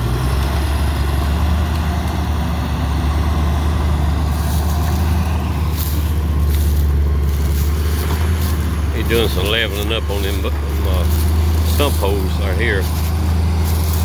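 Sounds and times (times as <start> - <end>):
diesel engine humming: 0.0 - 14.0.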